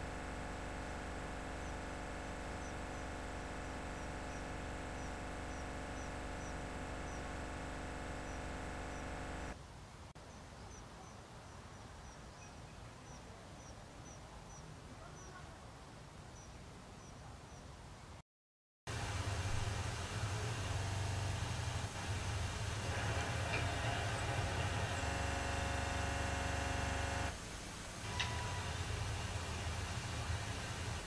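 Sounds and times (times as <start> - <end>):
steady multi-tone hum: 0.0 - 9.6, 18.9 - 31.0
outdoor ambience: 0.0 - 18.2, 18.9 - 31.0.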